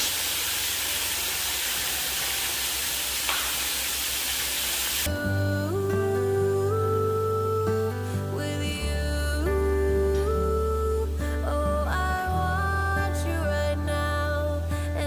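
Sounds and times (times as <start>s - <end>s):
sausage sizzling in a pan: 0.0s - 5.1s
gentle guitar music: 5.1s - 15.0s.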